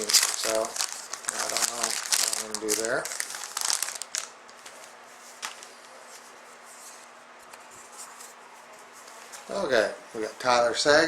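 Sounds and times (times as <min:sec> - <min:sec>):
card pack wrapper crinkling: 0:00.0 - 0:04.8
cards rustling: 0:00.0 - 0:05.9.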